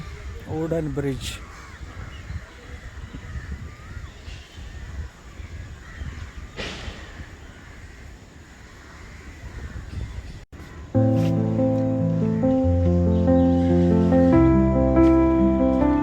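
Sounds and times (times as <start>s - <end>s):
crow cawing: 1.3s - 2.2s, 7.5s - 9.8s
loud music: 11.0s - 16.0s.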